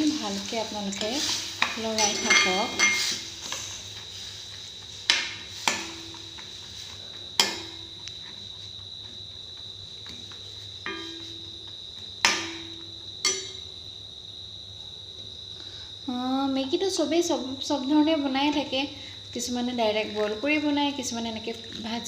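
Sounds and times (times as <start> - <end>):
cricket trill: 0.0 - 22.0
metal spatula knocking on metal pan: 7.4 - 7.9, 10.8 - 11.6, 12.2 - 13.7.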